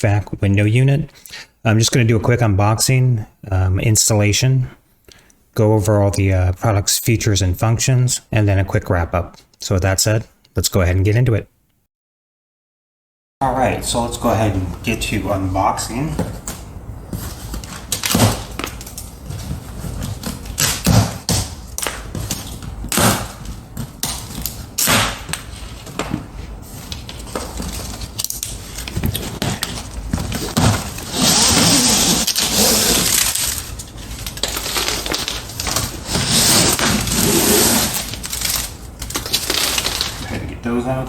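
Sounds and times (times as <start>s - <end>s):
packing rustling and tearing: 16.4s - 40.3s.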